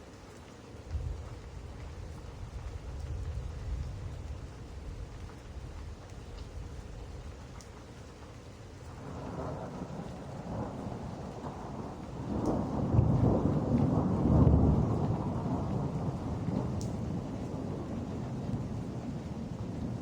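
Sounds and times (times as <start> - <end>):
steady rain: 0.0 - 20.0
rolling thunder: 9.0 - 20.0.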